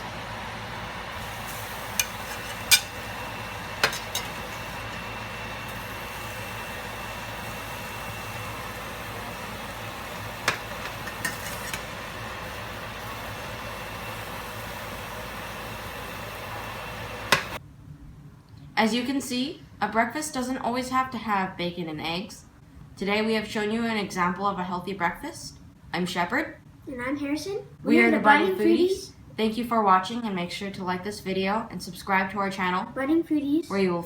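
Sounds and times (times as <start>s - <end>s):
omelet hissing in a pan: 1.1s - 17.6s
utensils tapping a pan: 1.4s - 5.9s, 10.1s - 12.1s.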